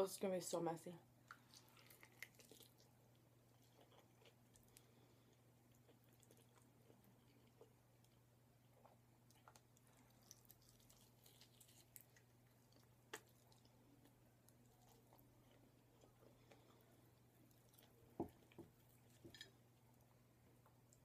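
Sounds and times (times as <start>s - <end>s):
person chewing with wet mouth clicks: 1.2s - 2.9s, 3.5s - 8.2s, 8.8s - 19.2s.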